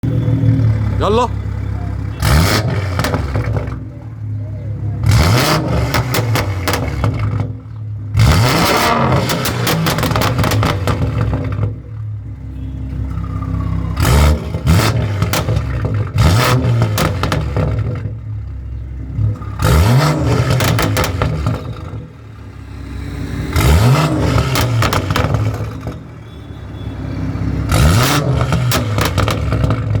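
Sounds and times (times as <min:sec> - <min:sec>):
car engine revving: 0:00.0 - 0:12.0, 0:13.0 - 0:26.3, 0:27.0 - 0:30.0
exhaust pops crackling: 0:05.0 - 0:07.8, 0:08.8 - 0:12.0, 0:14.3 - 0:18.5, 0:19.2 - 0:22.1, 0:24.2 - 0:26.1, 0:27.7 - 0:30.0.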